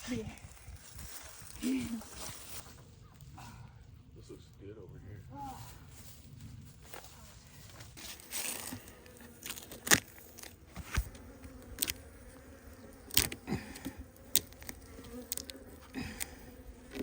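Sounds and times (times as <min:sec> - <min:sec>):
honeybees buzzing: 0:08.0 - 0:17.0.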